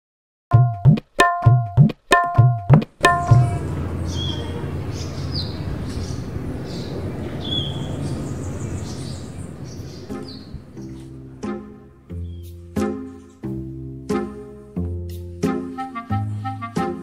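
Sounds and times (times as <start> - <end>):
plucked string music: 0.5 - 4.0, 10.2 - 15.8
birds chirping: 3.0 - 11.5, 12.1 - 13.5
low hum: 3.1 - 5.8.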